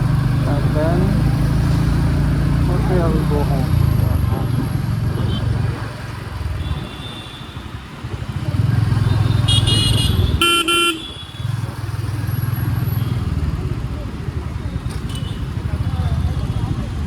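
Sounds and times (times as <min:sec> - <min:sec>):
motorcycle engine running: 0:00.0 - 0:06.9, 0:08.0 - 0:17.0
vehicle horn beeps: 0:06.6 - 0:07.8, 0:09.0 - 0:11.6.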